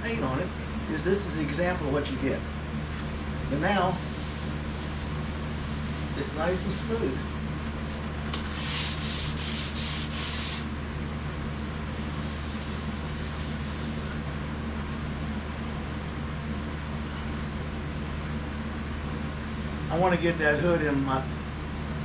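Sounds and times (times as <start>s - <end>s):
sandpaper rubbing on car panel: 3.8s - 7.4s, 8.5s - 10.7s, 12.0s - 14.2s.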